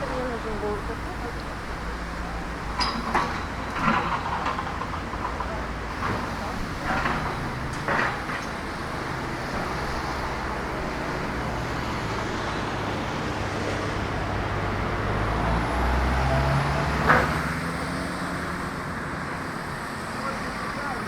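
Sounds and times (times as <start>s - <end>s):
vehicle engine passing: 9.0s - 21.0s.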